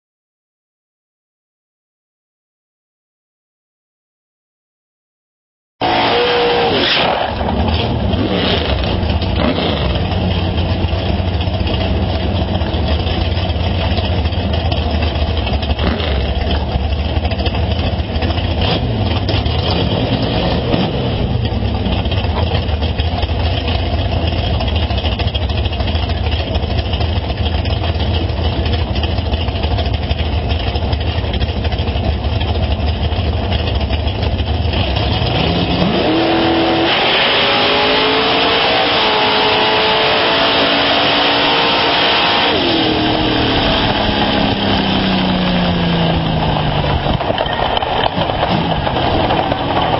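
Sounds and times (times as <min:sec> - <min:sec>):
race car engine idling: 0:07.3 - 0:35.8, 0:42.7 - 0:49.9.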